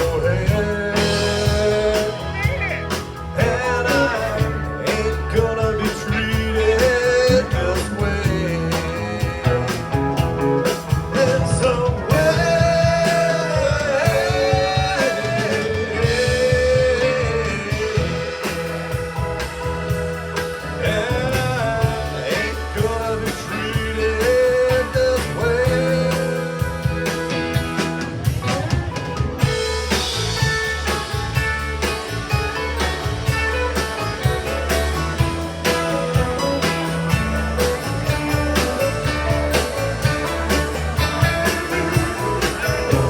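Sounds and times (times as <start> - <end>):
bass guitar: 0.0 - 43.0
bending lead melody: 0.0 - 43.0
drum kit beat: 0.0 - 43.0
electric guitar: 0.0 - 43.0.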